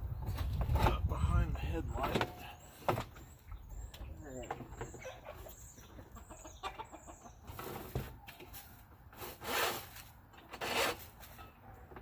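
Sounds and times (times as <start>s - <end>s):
winch scraping against mount: 9.1s - 11.6s.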